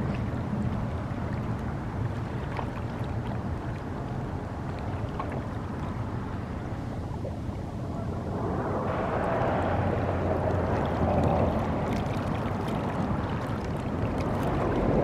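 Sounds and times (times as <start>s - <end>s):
water washing: 7.9s - 15.0s.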